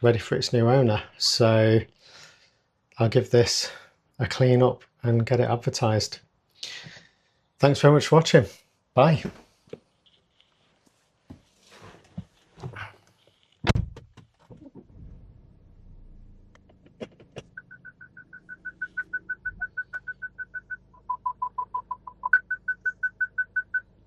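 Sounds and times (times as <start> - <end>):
rapid electronic beeps: 17.6 - 23.9.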